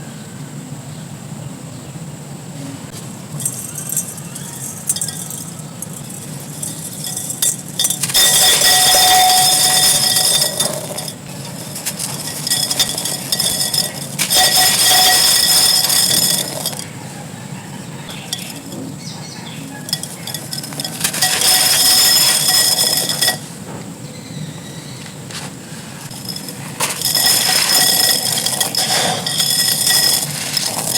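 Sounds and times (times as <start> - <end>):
clay fragments and sand crunching: 2.9 - 23.6, 25.3 - 30.9
clinks of hard shards: 3.4 - 16.9, 18.1 - 23.6, 26.0 - 30.9.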